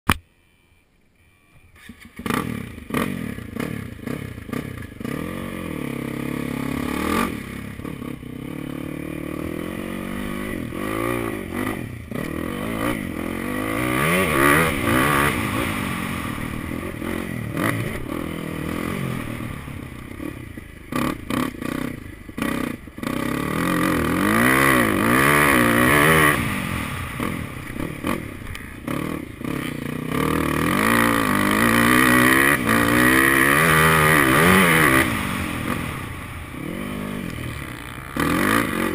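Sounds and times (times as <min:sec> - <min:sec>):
motorcycle engine revving: 0:01.8 - 0:38.9.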